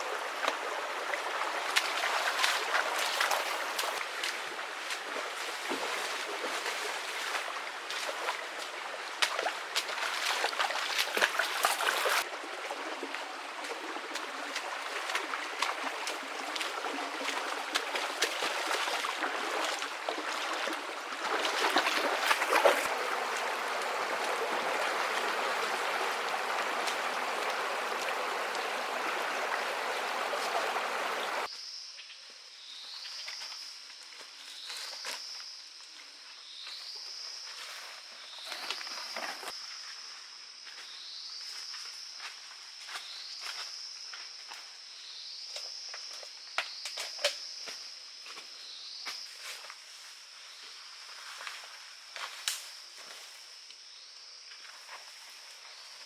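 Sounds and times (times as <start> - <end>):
stream water splashing: 0.0 - 31.5.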